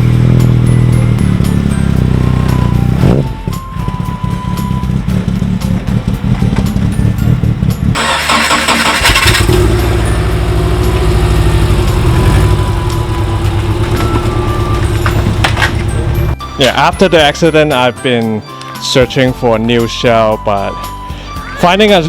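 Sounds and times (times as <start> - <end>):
car engine running: 0.0 - 16.4.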